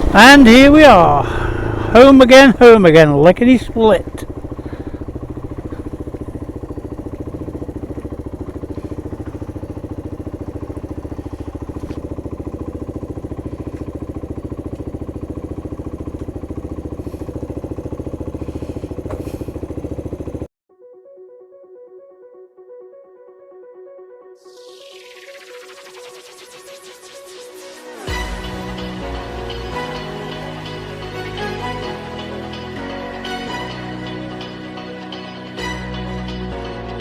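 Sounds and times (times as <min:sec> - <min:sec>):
motorcycle engine idling: 0:00.0 - 0:20.5.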